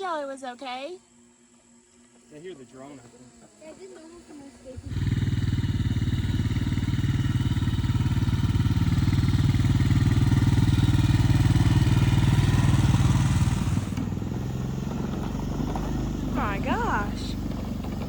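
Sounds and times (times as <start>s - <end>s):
atv engine running: 3.6s - 18.0s.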